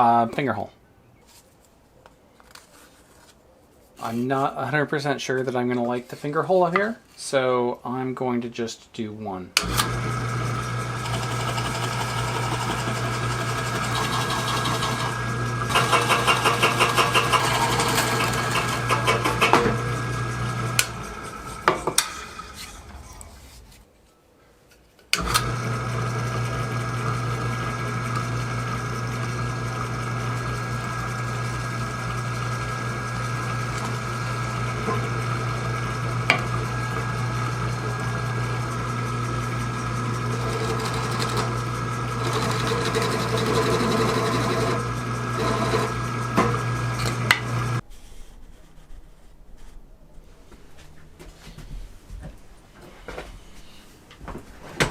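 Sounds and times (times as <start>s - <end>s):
drill press motor humming: 9.6s - 23.8s, 25.2s - 47.8s
drill bit chattering through plate: 10.5s - 22.9s, 40.2s - 47.8s.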